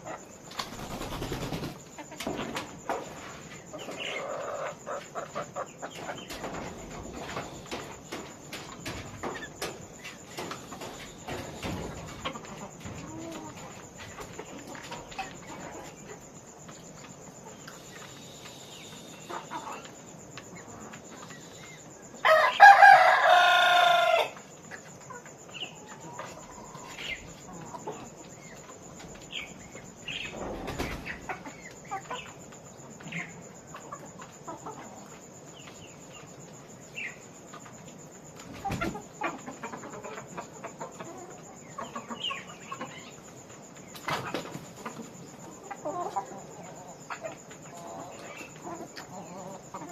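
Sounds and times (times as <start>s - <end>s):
chickens clucking: 0.0s - 49.9s
rooster crowing: 22.2s - 24.4s.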